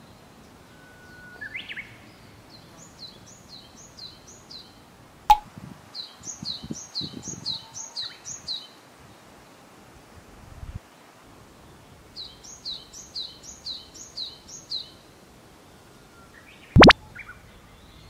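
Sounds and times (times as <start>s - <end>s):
songbirds singing: 11.6s - 15.0s
sharp click: 16.8s - 17.0s.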